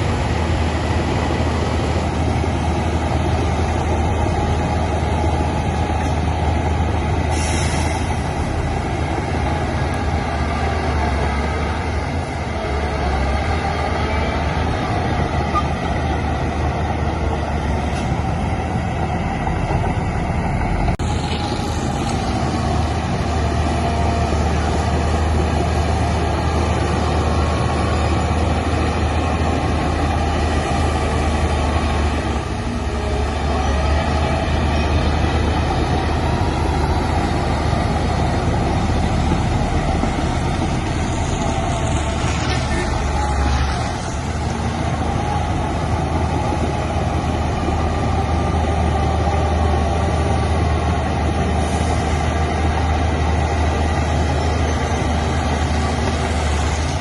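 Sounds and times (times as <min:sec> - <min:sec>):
diesel machinery engine drone: 0:00.0 - 0:57.0.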